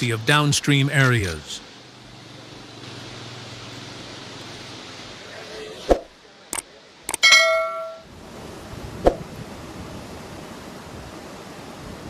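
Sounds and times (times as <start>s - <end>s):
metallic ding: 7.2s - 8.1s.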